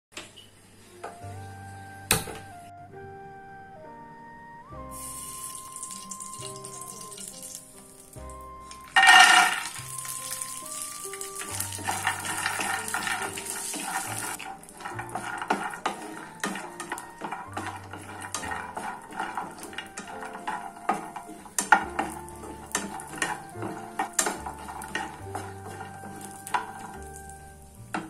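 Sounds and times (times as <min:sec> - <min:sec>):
instrumental background music: 0:00.9 - 0:28.0
nuts sizzling in a pan: 0:04.9 - 0:28.0
spatula scraping a pan: 0:08.7 - 0:28.0
nuts tipped into a pan: 0:08.8 - 0:20.1.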